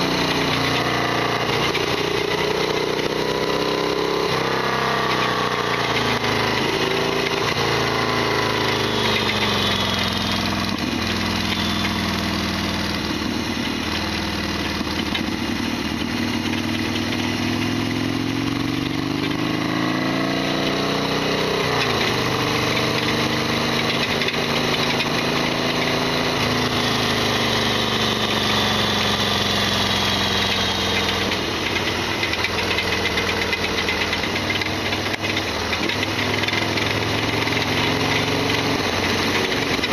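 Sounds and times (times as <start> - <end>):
motorcycle engine running: 0.0 - 39.9
loud mechanical rattling: 30.3 - 39.9.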